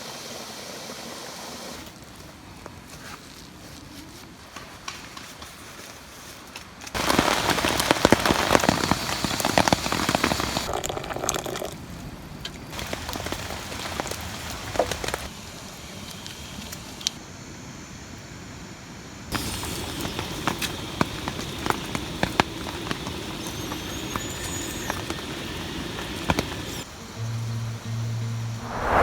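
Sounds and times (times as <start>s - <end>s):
rain falling: 7.0s - 11.6s, 12.7s - 15.3s, 19.4s - 26.8s.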